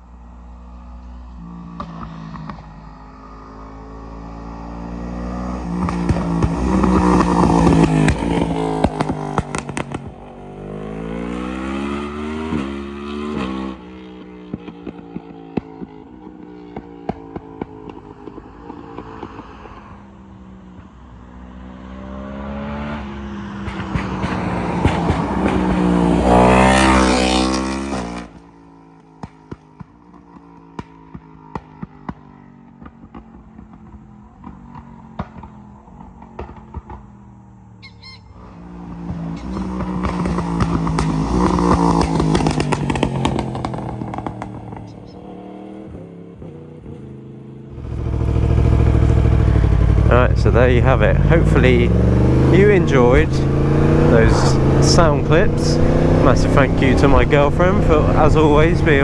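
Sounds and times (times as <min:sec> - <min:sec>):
motorcycle engine accelerating: 0:03.5 - 0:28.6, 0:32.7 - 0:59.0
exhaust pops and crackles: 0:05.8 - 0:10.2, 0:23.7 - 0:27.0, 0:32.8 - 0:37.3, 0:39.5 - 0:44.9, 0:47.8 - 0:59.0.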